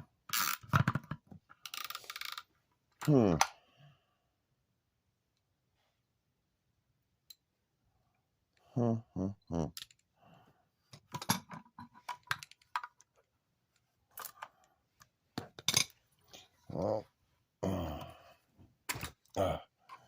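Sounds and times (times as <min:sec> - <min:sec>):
person grunting: 0:08.7 - 0:09.8, 0:16.7 - 0:18.4, 0:19.3 - 0:19.8.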